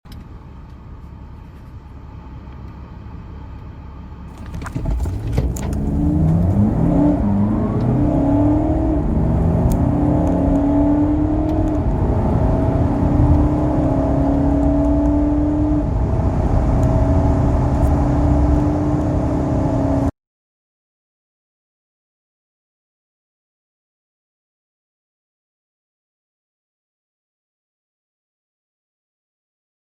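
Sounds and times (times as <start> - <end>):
car engine accelerating: 4.3 - 20.1.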